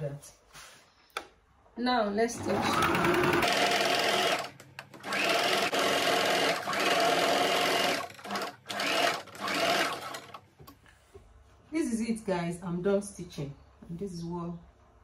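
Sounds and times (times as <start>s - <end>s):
sewing machine stitching: 2.4s - 10.4s.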